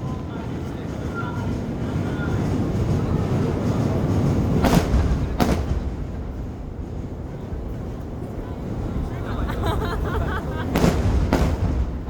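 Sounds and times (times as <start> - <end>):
fireworks rumbling bursts: 1.5 - 12.0
sharp firework bangs: 4.6 - 6.7, 10.6 - 12.0.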